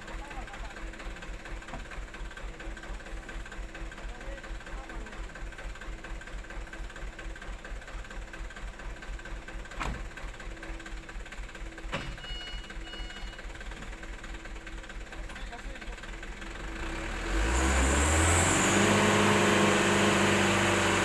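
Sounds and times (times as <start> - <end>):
diesel engine running: 0.0 - 21.0
short high beeps: 12.2 - 13.5.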